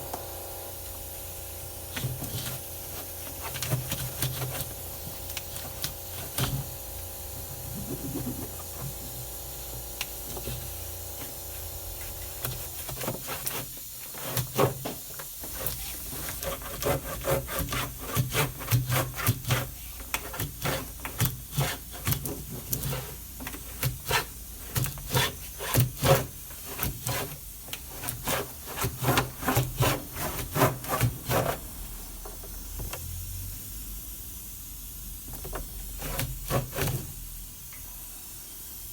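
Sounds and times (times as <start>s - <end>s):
steady low hum: 0.0s - 12.8s
hand scrubbing and scraping: 7.6s - 9.1s, 15.4s - 31.8s.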